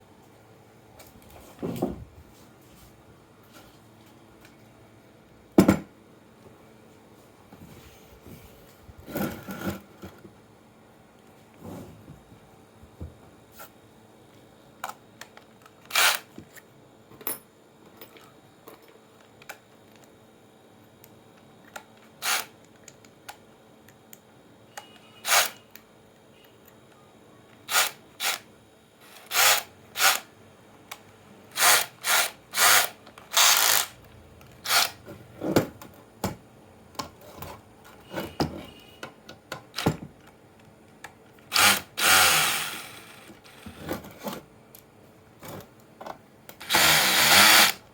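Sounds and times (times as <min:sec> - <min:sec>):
small power tool running in bursts: 0:25.2 - 0:25.5, 0:29.1 - 0:30.2, 0:31.6 - 0:34.0, 0:41.5 - 0:43.8, 0:46.6 - 0:47.8.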